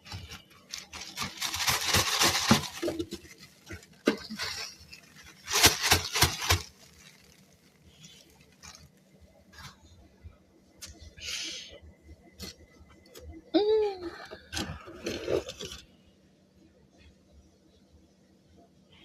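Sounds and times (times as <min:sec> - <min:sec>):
freezer frost crunching: 0:00.0 - 0:09.9, 0:14.3 - 0:15.9.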